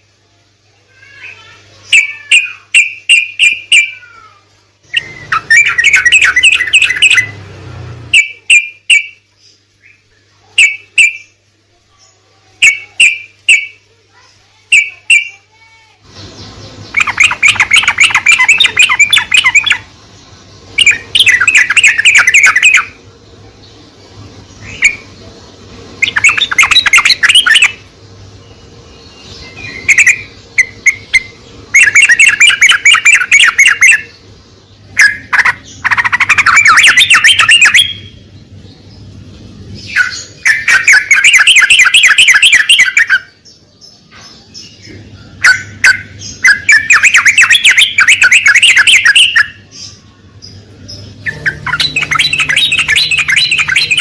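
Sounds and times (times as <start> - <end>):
bird chattering song: 0.0 - 54.0
faint low hum: 0.0 - 54.0.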